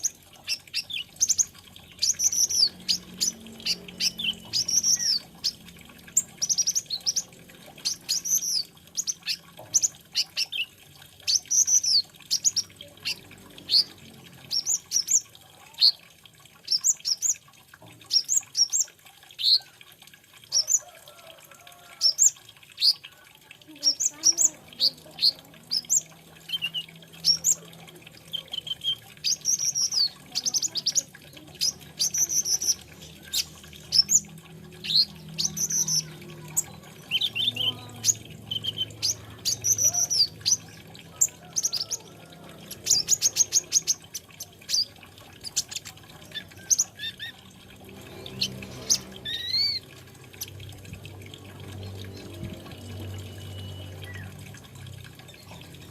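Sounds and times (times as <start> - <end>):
sunbird singing: 0.0 - 15.2, 23.7 - 42.1, 52.2 - 54.4.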